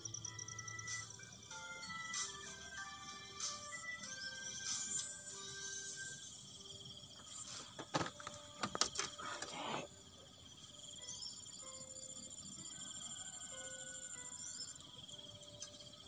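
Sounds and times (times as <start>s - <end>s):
insects chirring in pulsing trill: 0.0s - 16.0s
sharp clicks and knocks: 7.8s - 9.6s.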